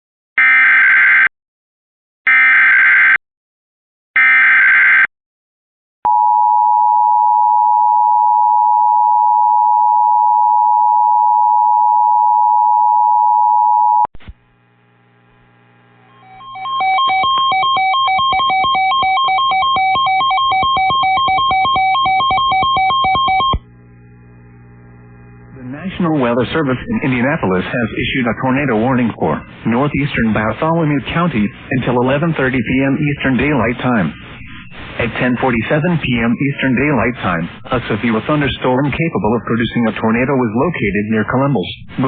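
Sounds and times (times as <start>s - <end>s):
synthesized music: 16.1s - 23.6s
two-tone attention signal: 16.1s - 23.6s.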